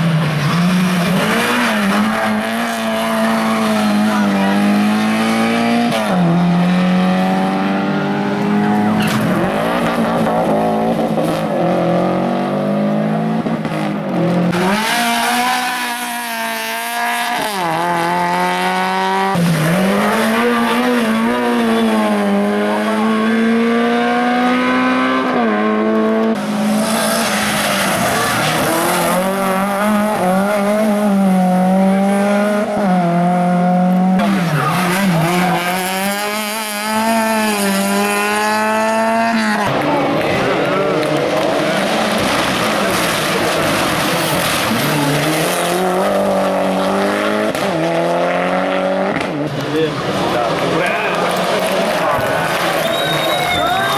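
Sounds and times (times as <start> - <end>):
race car engines revving: 0.0 - 53.9
tyre squeal: 52.7 - 53.9.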